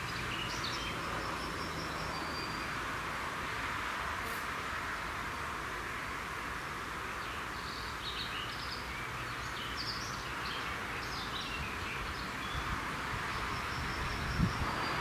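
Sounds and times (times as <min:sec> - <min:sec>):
small birds chirping: 0:00.0 - 0:02.8, 0:07.1 - 0:15.0.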